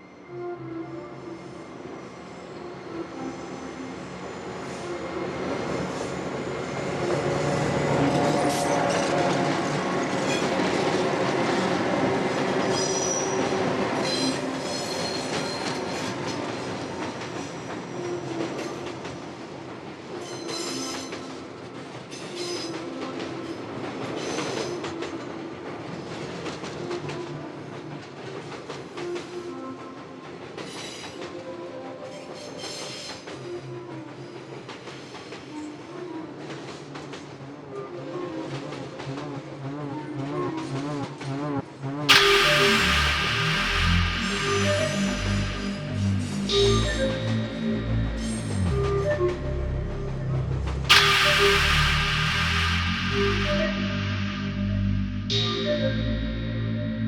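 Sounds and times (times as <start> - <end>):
high wheel squeals: 1.3 - 18.7
train wheels clacking on rails: 5.6 - 39.4, 42.1 - 47.5, 50.9 - 54.9
steady sustained tones: 42.1 - 57.0.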